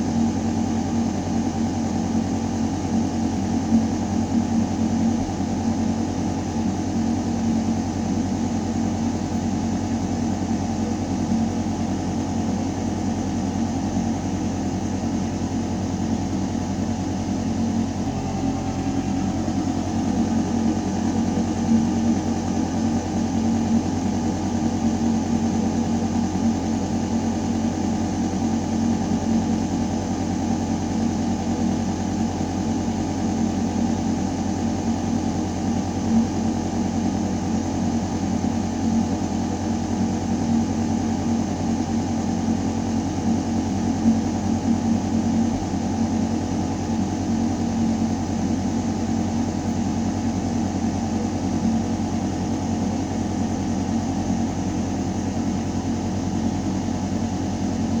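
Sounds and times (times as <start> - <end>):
ventilation system hum: 0.0 - 58.0.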